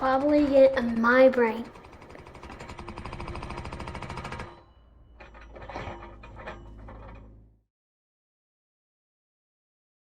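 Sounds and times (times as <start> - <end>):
scattered knocks: 0.0 - 7.4
excavator engine running: 0.0 - 7.6.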